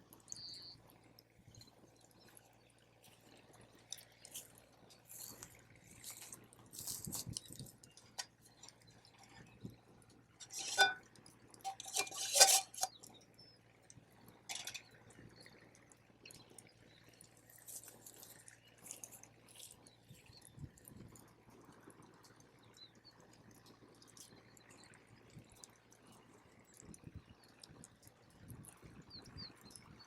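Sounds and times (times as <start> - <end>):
cookware clicks and scrapes: 10.4 - 11.0, 11.6 - 13.1, 14.5 - 14.9.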